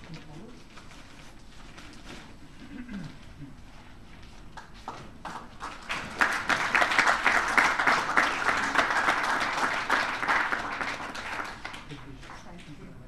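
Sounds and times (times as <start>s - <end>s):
audience applauding: 4.6s - 12.4s.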